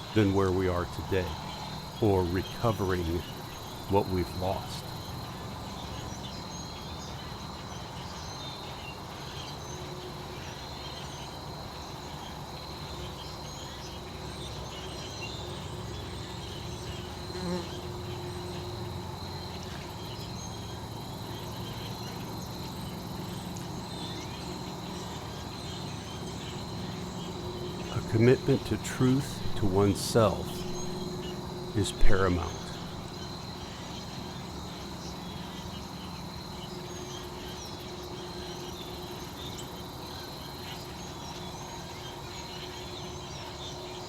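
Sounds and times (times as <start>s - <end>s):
insect chorus trilling: 0.0s - 44.0s
low steady hum: 26.3s - 33.3s.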